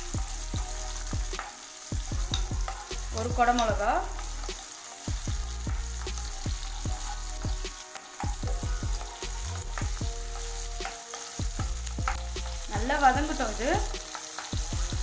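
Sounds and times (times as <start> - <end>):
spatula stirring in a pan: 0.0 - 15.0
vegetables sizzling in oil: 0.0 - 15.0.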